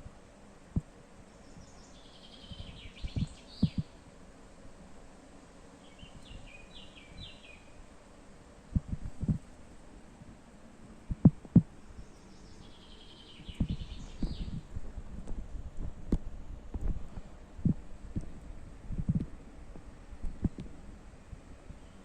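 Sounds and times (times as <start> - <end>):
outdoor background noise: 0.0 - 22.0
small bird chirping: 1.3 - 4.0, 5.8 - 7.8, 11.9 - 14.7.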